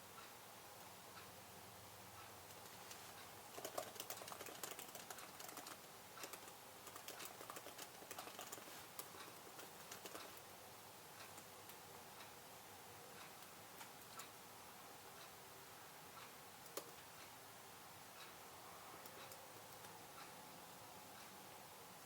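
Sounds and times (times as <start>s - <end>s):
typing on a computer keyboard: 2.5s - 10.5s, 16.6s - 17.0s, 19.0s - 20.0s.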